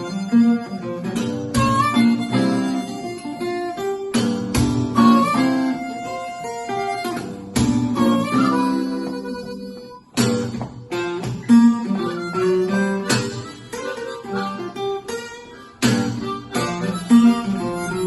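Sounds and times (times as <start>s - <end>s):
harmonica melody: 0.0s - 18.0s
strummed acoustic guitar: 0.0s - 18.0s.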